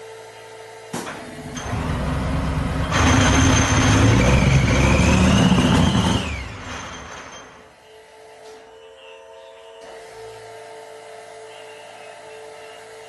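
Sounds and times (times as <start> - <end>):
truck engine running with whine: 0.0 - 13.0
engine cranking: 1.4 - 7.7.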